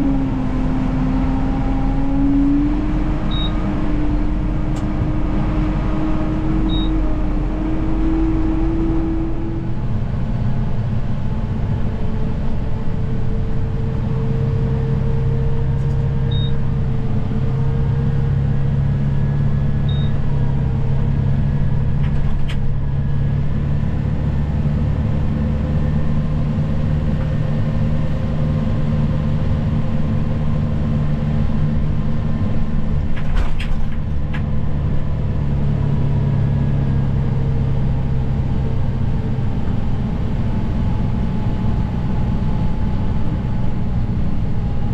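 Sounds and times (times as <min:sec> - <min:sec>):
snow plow engine running: 0:00.0 - 0:44.9
short high beeps: 0:03.3 - 0:03.6, 0:06.7 - 0:07.0, 0:16.3 - 0:16.6.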